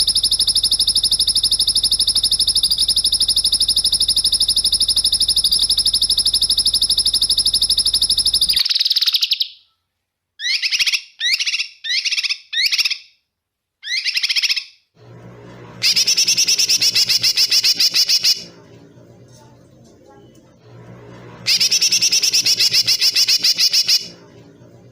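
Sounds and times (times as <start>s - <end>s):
songbird trilling and whistling: 10.4s - 13.0s, 13.8s - 14.7s, 15.8s - 18.5s, 21.5s - 24.2s.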